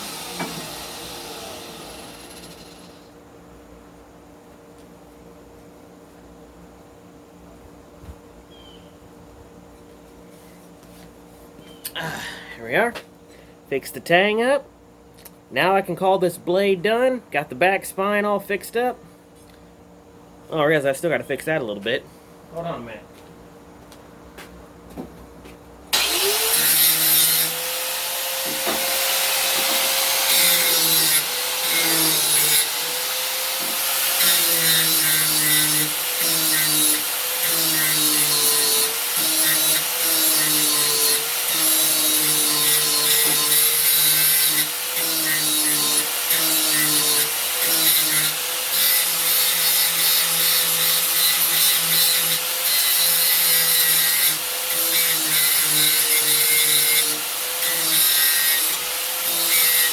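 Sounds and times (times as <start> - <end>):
power tool grinding steel: 0.0 - 3.1, 26.0 - 59.9.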